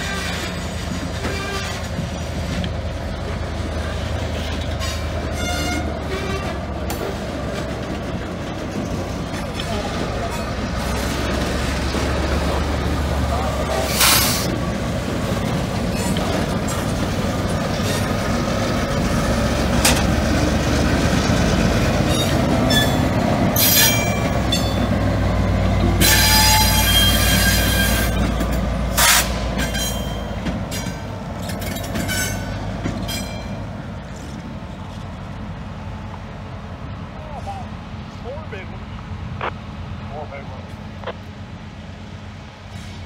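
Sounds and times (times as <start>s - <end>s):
wheels squealing against rails: 0.0s - 2.2s, 4.2s - 7.8s, 13.4s - 14.6s, 15.7s - 19.1s, 21.9s - 25.0s, 25.8s - 34.4s
diesel locomotive engine running: 0.0s - 43.0s
rail cars clanking: 0.0s - 43.0s.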